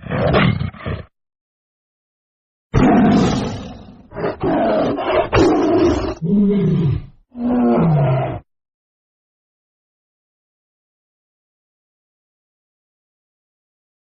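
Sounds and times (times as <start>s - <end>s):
tiger roaring: 0.0s - 1.1s, 2.8s - 8.5s.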